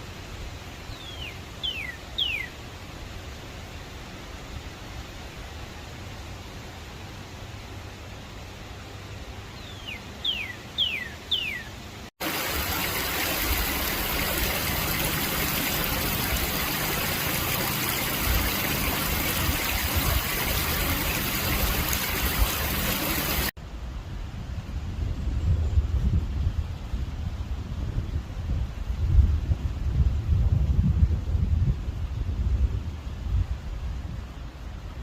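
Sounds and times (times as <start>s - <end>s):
running water rushing: 0.0s - 23.6s
songbird whistling downward notes: 0.9s - 2.5s, 9.6s - 11.7s.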